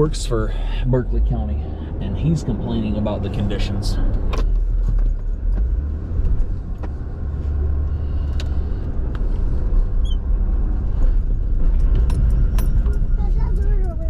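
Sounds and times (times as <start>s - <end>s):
diesel truck rumbling: 0.0s - 14.0s.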